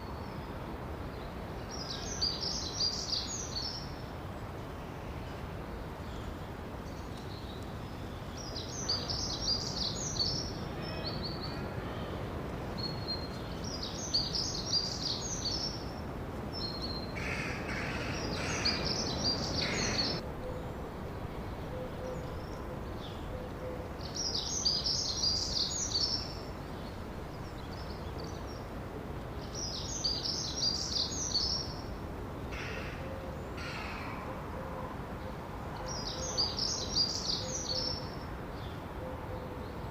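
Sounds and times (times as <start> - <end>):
background hiss: 0.0 - 39.9
harsh bird calls: 16.8 - 20.6.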